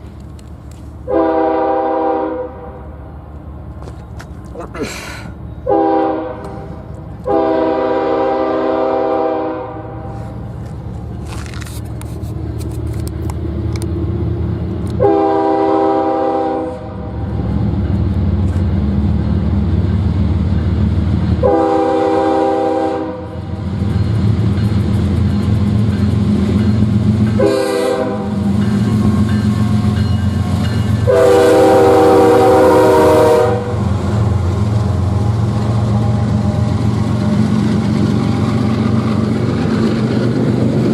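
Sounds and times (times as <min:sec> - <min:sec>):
low train rumble: 0:00.0 - 0:40.9
locomotive air horn blasts: 0:01.1 - 0:02.9, 0:05.6 - 0:10.4, 0:15.0 - 0:17.1, 0:21.4 - 0:23.4, 0:27.4 - 0:28.4, 0:30.9 - 0:34.0.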